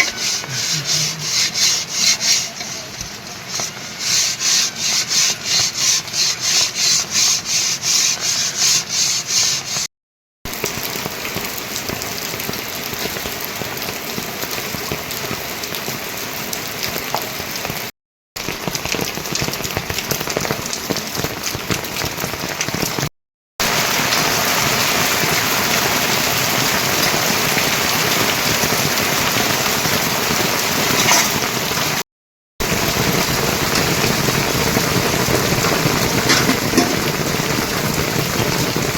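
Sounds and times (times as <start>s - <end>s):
steady rain: 0.0s - 8.4s, 10.5s - 32.0s, 32.6s - 38.9s
hand tool working wood: 0.0s - 9.9s, 31.0s - 31.4s, 35.4s - 37.3s.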